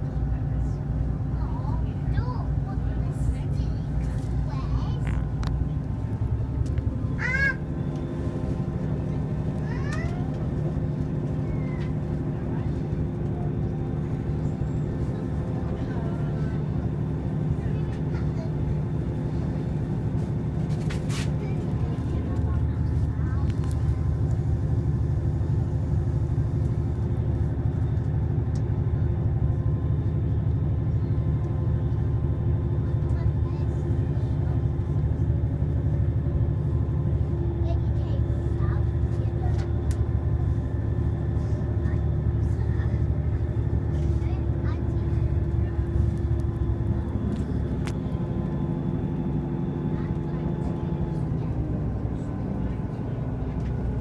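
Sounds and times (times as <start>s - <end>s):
train rumbling along: 0.0s - 54.0s.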